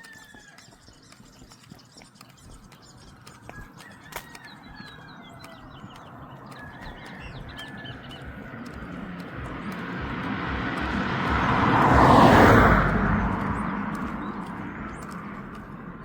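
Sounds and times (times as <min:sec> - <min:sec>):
birds chirping: 0:00.0 - 0:16.0
motor vehicle passing by: 0:03.2 - 0:16.0.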